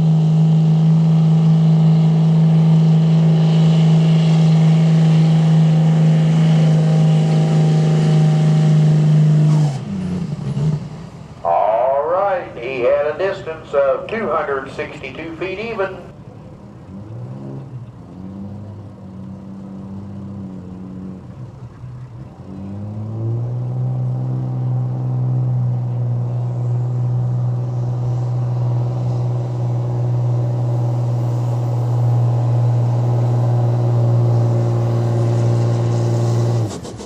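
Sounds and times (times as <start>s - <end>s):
truck engine revving: 0.0s - 37.0s.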